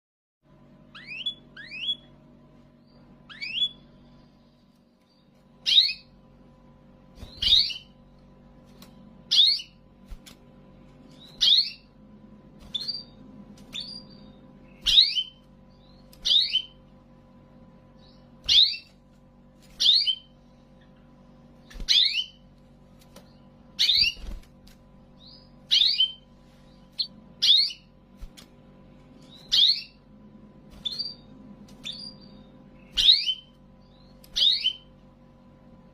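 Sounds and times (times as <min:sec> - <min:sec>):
canary chirping: 0:00.8 - 0:02.2, 0:02.8 - 0:04.2, 0:05.0 - 0:06.2, 0:07.2 - 0:10.0, 0:11.0 - 0:12.0, 0:12.6 - 0:17.1, 0:17.8 - 0:28.1, 0:29.1 - 0:35.1.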